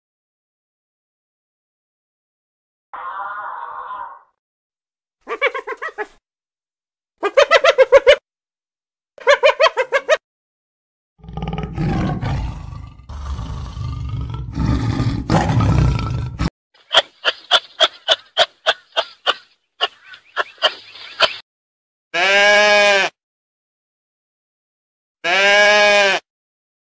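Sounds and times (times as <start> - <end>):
tiger growling: 11.2 - 16.5.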